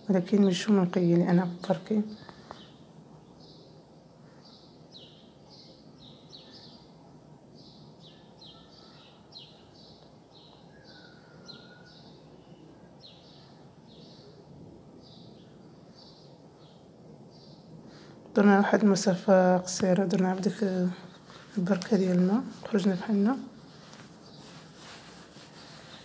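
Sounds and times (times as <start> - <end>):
songbird chirping: 0.0 - 26.0
low background hum: 12.2 - 26.0.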